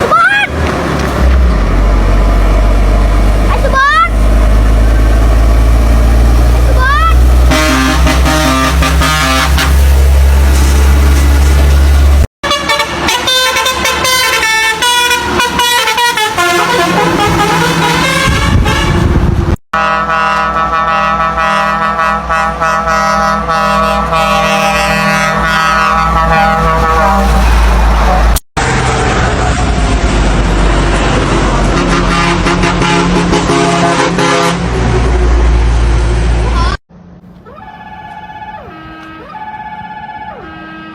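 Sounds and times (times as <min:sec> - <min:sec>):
truck melody air horns: 0:06.9 - 0:10.2, 0:12.4 - 0:28.4, 0:31.6 - 0:34.8, 0:37.6 - 0:40.9.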